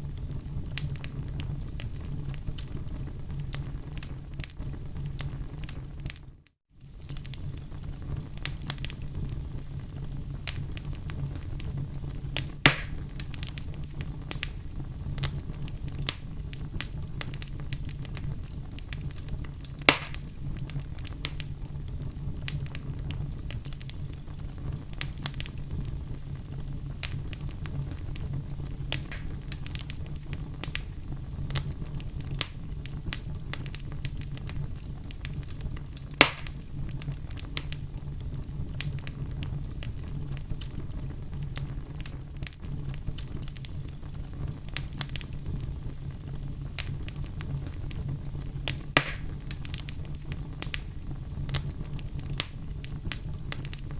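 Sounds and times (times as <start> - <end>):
fire crackling: 0.0 - 53.9
wood fire rumbling: 0.0 - 53.9
loud wood pops: 12.7 - 13.0, 19.9 - 20.3, 29.0 - 29.4, 36.2 - 36.6, 49.0 - 49.3.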